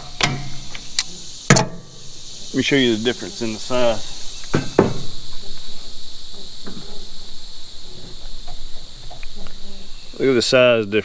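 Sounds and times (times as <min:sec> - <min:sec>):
insects singing: 0:00.0 - 0:11.0
faint clicks: 0:00.2 - 0:01.1.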